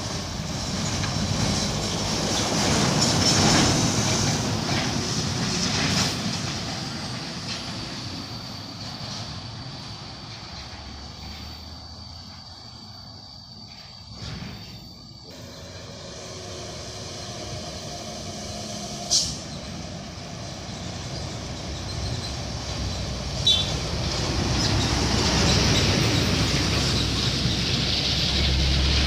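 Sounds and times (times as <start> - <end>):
truck diesel engine labouring: 0.0 - 11.6, 15.2 - 29.0
air brake hisses: 14.2 - 19.8.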